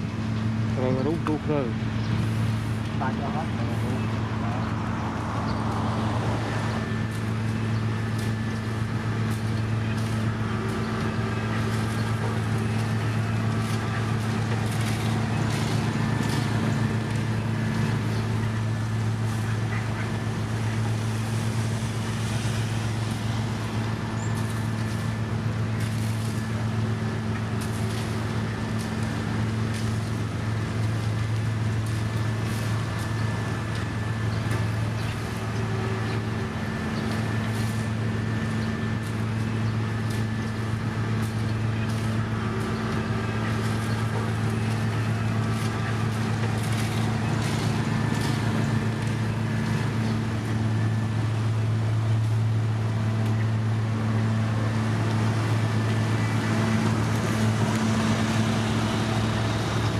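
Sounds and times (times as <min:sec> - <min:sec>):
diesel machinery droning: 0:00.0 - 0:59.9.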